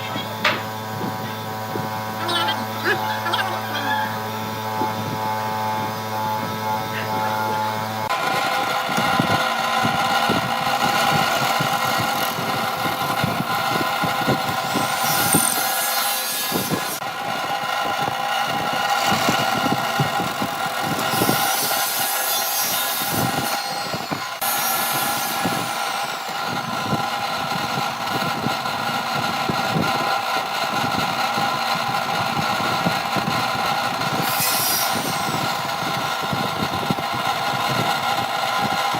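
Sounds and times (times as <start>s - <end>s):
power tool whining: 0.0s - 38.9s
knocks and scraping on wood: 0.3s - 1.9s.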